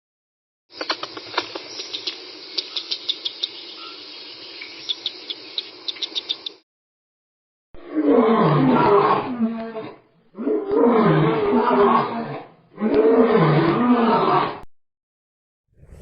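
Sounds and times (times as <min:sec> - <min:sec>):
big cat roaring: 0:07.8 - 0:14.7.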